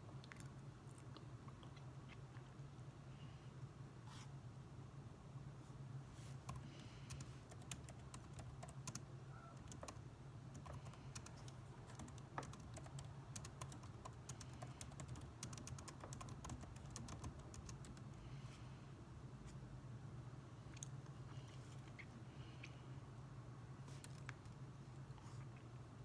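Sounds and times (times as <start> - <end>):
steady low hum: 0.0 - 26.0
typing on computer keyboard: 6.4 - 9.0, 9.6 - 18.1.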